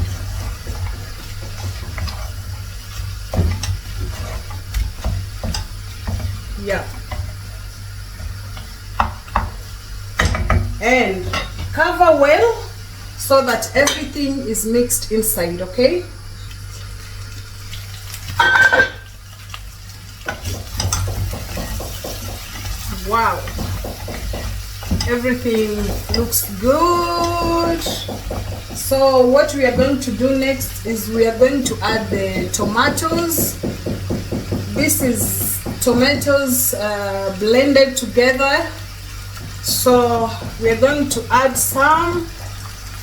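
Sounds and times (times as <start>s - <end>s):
chicken frying with low sizzle: 0.0s - 43.0s
cookware clanking: 18.4s - 19.1s.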